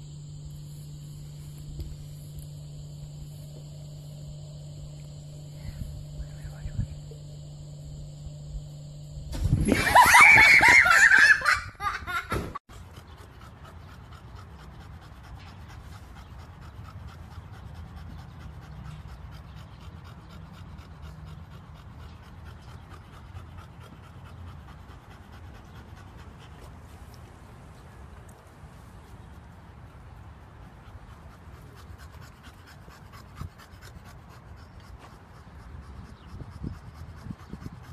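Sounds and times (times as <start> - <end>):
loud laughter: 9.7 - 12.6
dog panting: 12.7 - 37.9.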